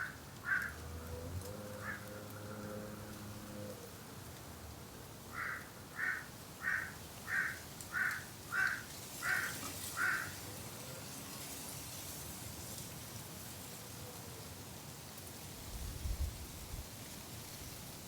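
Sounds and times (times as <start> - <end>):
bird calling: 5.4 - 10.3.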